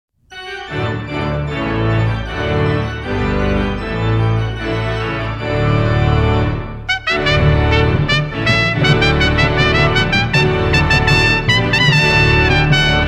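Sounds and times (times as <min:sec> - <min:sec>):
organ playing held chords: 0:00.3 - 0:13.0
bass line: 0:05.6 - 0:13.0.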